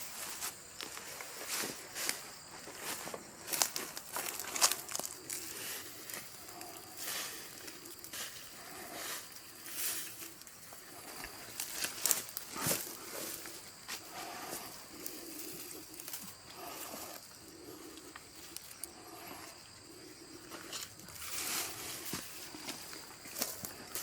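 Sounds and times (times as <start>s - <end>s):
crickets chirring: 0.0s - 24.0s
dry leaves crunching underfoot: 0.1s - 6.2s, 11.0s - 14.6s.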